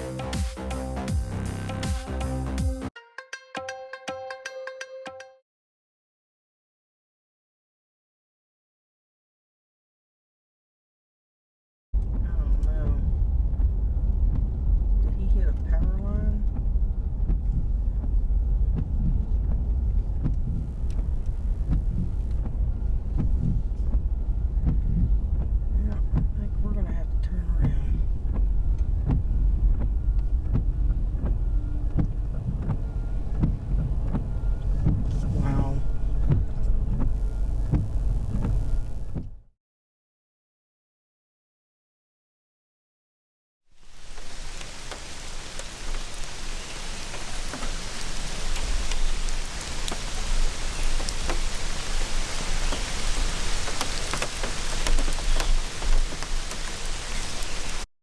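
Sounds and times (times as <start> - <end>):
storm wind and rain on truck: 12.0 - 39.3, 43.8 - 57.9.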